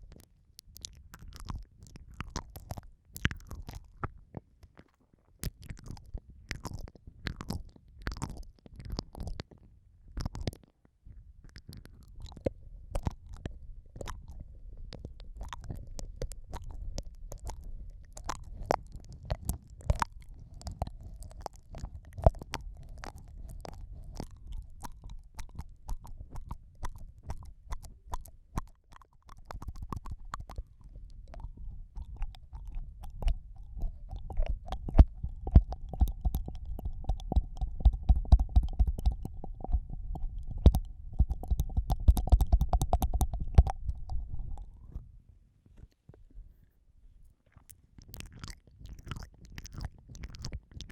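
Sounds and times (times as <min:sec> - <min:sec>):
wet mouth licking sounds: 0:00.0 - 0:10.7, 0:11.4 - 0:45.0, 0:47.4 - 0:50.9
low muffled rumble: 0:30.7 - 0:47.3.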